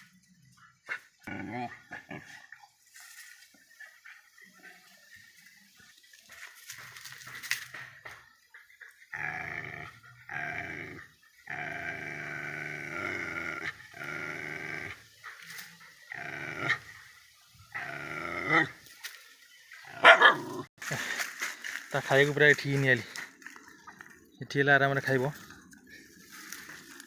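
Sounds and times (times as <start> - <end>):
dog growling: 1.2 - 2.6, 9.1 - 17.0, 17.7 - 18.8.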